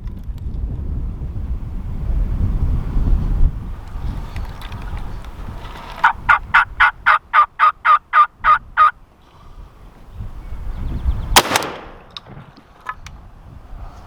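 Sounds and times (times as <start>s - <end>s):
turkey yelping: 6.0s - 9.0s
loud shotgun blast: 11.4s - 12.2s.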